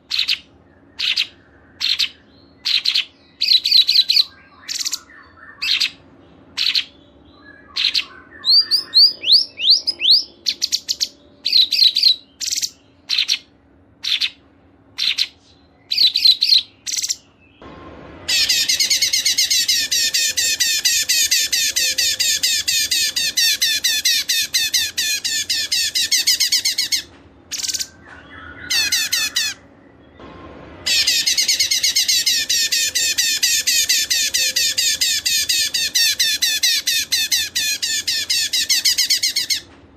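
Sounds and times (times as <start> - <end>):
songbird high calls: 0.0 - 14.4, 15.0 - 17.4, 18.3 - 29.7
rapid twittering birdsong: 0.0 - 39.8.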